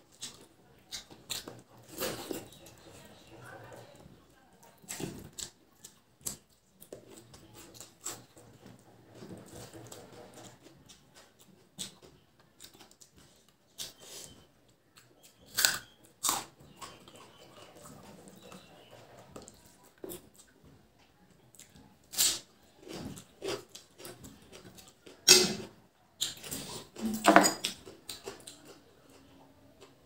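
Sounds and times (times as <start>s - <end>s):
chewing and mouth clicks: 0.1s - 3.0s, 9.5s - 25.2s, 27.6s - 30.0s.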